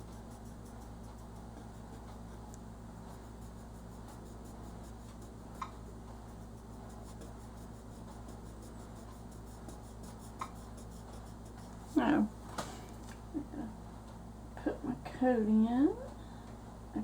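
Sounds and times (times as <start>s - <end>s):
small ticks: 0.0s - 11.8s
crayon scratching on paper: 0.0s - 12.3s
steady low hum: 0.0s - 17.0s.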